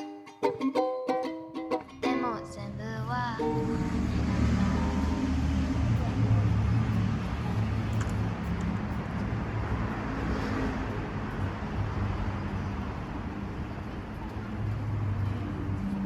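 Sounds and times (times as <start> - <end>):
passing vehicles rushing: 1.6 - 16.0
low engine hum: 2.0 - 16.0.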